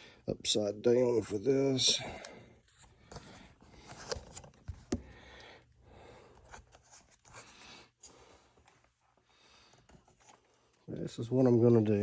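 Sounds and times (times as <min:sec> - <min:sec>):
soft scraping and rustling: 0:06.4 - 0:12.0.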